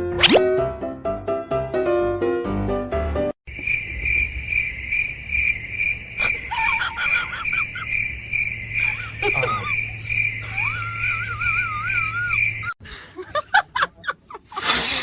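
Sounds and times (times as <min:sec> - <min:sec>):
piano-like music: 0:00.0 - 0:03.3
cricket chirping: 0:03.5 - 0:12.8
short squeaky calls: 0:08.8 - 0:12.7.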